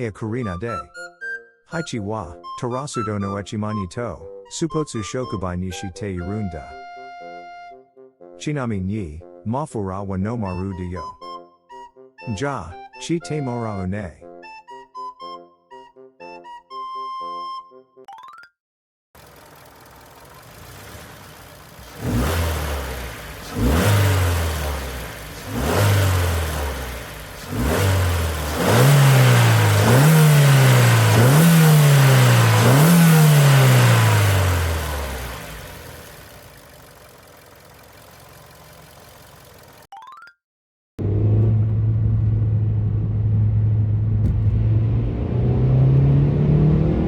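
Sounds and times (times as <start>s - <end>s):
car engine revving: 19.2s - 39.8s, 41.0s - 47.0s.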